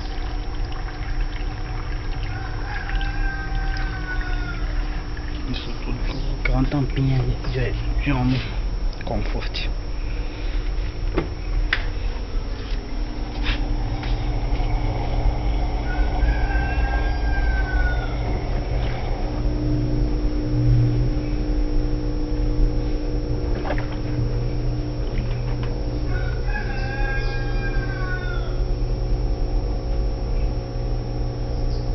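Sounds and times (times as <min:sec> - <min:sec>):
washing machine humming: 0:00.0 - 0:31.9
rooster crowing: 0:02.0 - 0:05.1, 0:13.2 - 0:19.5, 0:26.0 - 0:28.7.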